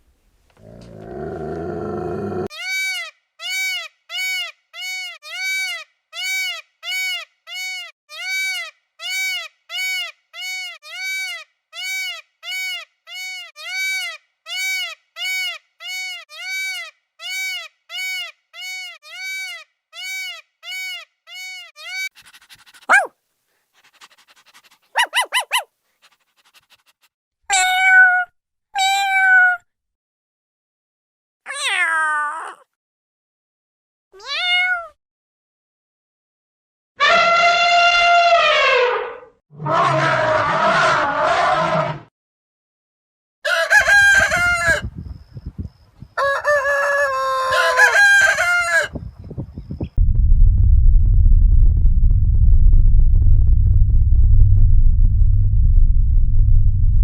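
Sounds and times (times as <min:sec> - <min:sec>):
cat trill: 0:18.6 - 0:23.1, 0:24.8 - 0:25.7, 0:27.5 - 0:29.6, 0:31.5 - 0:32.6, 0:34.2 - 0:34.9
cat meowing: 0:27.5 - 0:29.6, 0:31.5 - 0:32.7, 0:34.2 - 0:35.0.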